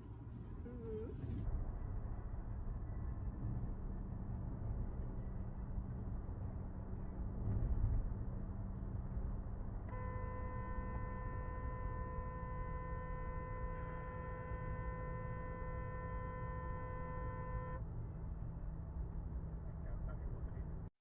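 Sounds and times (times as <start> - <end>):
low vehicle rumble: 0.0 - 20.9
steady pitched tone: 9.9 - 17.8.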